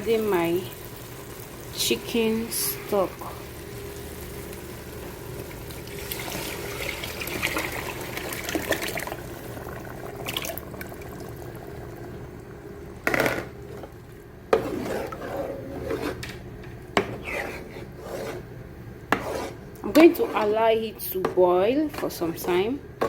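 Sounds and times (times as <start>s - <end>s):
liquid pouring into pot: 5.6s - 12.6s.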